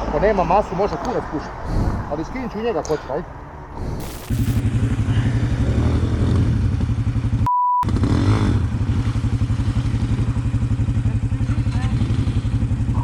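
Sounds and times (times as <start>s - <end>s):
motorcycle engine idling: 4.6s - 13.0s
high censor beep: 7.4s - 7.8s.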